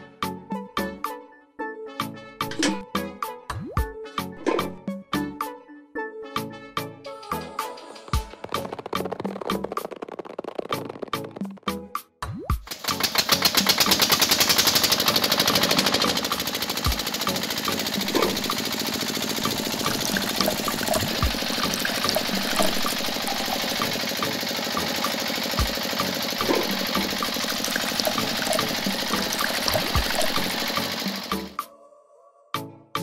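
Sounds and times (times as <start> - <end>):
small motor rattling: 12.7 - 31.6
liquid trickling into plastic cup: 19.6 - 23.9, 26.8 - 30.7.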